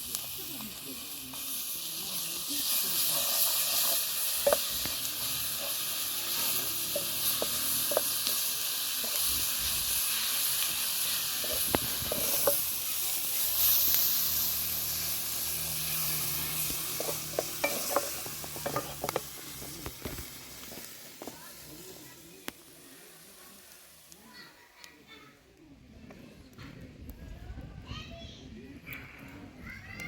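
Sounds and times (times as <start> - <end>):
food sizzling in a pan: 0.0 - 25.3
utensil clicks stirring food: 3.0 - 9.5, 11.4 - 12.7, 16.6 - 21.3.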